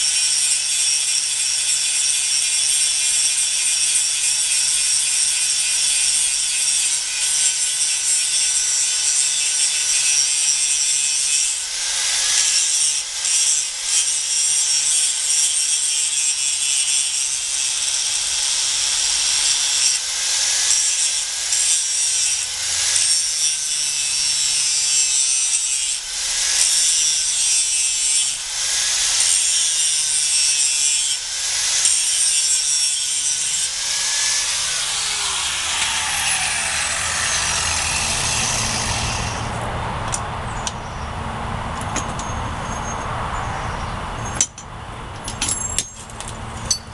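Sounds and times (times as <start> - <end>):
angle grinder grinding steel: 0.0 - 39.7.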